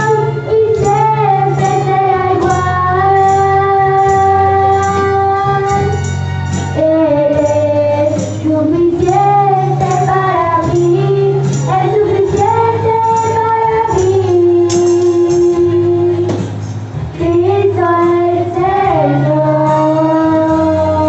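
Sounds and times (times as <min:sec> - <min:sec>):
light percussion beat: 0:00.0 - 0:17.4
high voice singing worship song: 0:00.0 - 0:21.0
instrumental accompaniment: 0:00.0 - 0:21.0.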